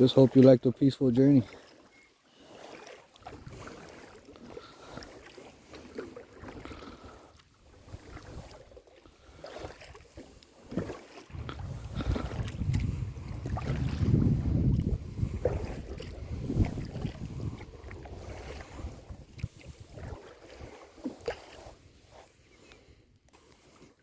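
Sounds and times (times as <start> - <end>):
kayak paddle splashing water: 0.0 - 24.0
wind rumble on microphone: 7.6 - 8.7, 11.3 - 20.8.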